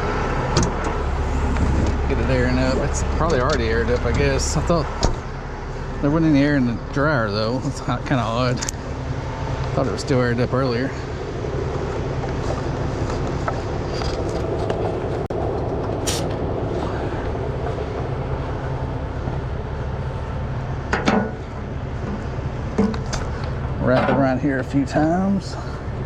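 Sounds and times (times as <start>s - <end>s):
diesel truck engine idling: 0.0s - 26.0s
brief hiss: 16.0s - 16.3s.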